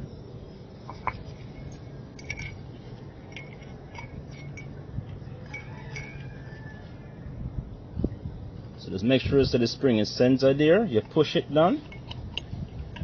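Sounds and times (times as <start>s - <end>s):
steady low hum: 0.0s - 13.0s
light metallic clinks and taps: 0.8s - 6.4s.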